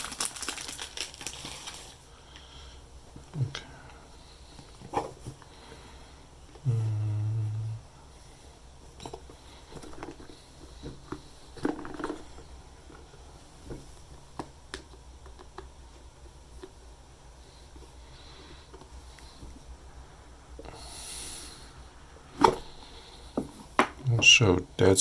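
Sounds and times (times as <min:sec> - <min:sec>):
cardboard packaging rustling: 0:00.0 - 0:02.0
low hum: 0:05.6 - 0:14.4.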